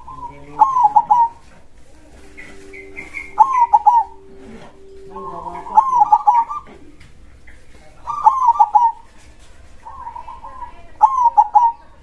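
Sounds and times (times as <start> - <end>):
dove cooing: 0.0 - 7.1, 8.0 - 9.1, 9.9 - 12.0.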